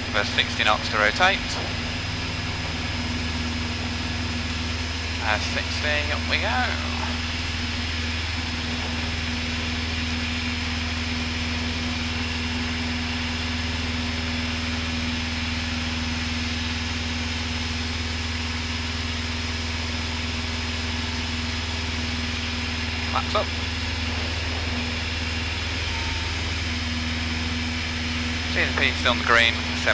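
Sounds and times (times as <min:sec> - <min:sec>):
propeller plane engine drone: 0:00.0 - 0:29.9.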